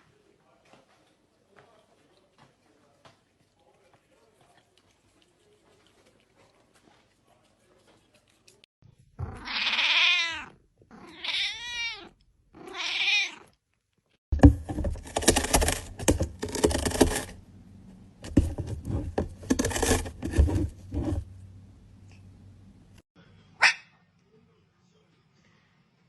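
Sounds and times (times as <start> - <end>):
cat meowing: 9.2 - 13.6.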